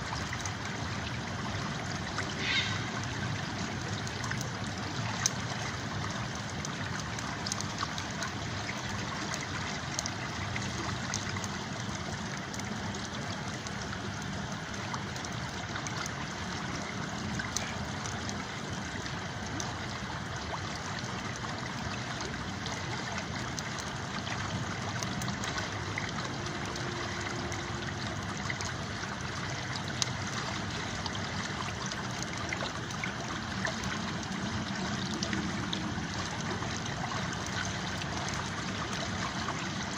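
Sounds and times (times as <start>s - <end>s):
river flowing: 0.0s - 39.9s.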